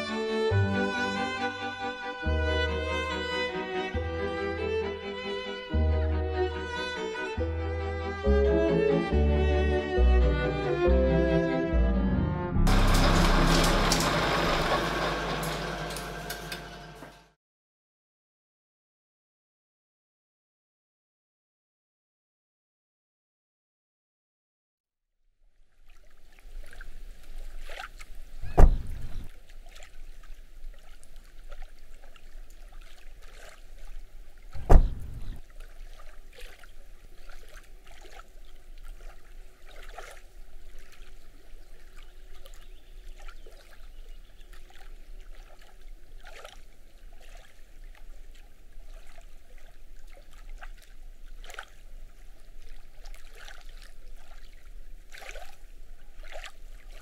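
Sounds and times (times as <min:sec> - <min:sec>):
water lapping at shore: 0:25.5 - 0:57.0
small splashes and ticks: 0:25.6 - 0:57.0
heavy low thumps: 0:28.4 - 0:29.3, 0:34.6 - 0:35.4.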